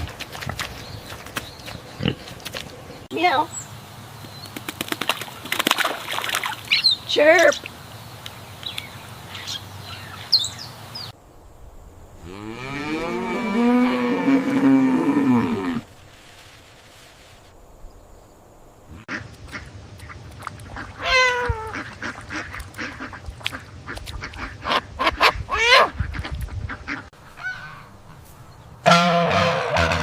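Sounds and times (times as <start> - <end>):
ducks quacking: 18.9 - 28.2, 28.8 - 30.0.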